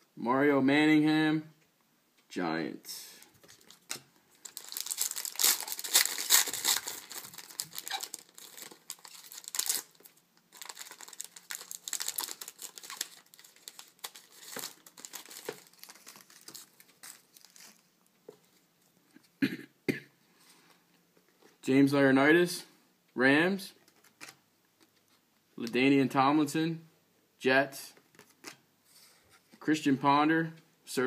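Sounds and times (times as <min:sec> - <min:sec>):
cards rustling: 0:03.3 - 0:17.9
foil wrapper crinkling and tearing: 0:03.4 - 0:17.8.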